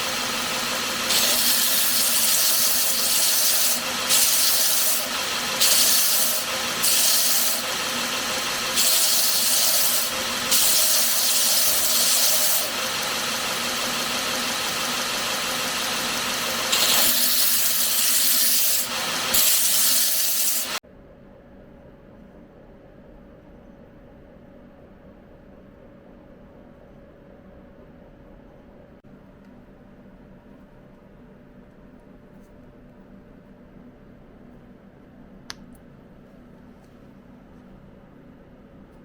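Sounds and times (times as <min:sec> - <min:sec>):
abrasive sanding on knife: 0:00.9 - 0:20.8
faint machine hum: 0:20.6 - 0:39.0.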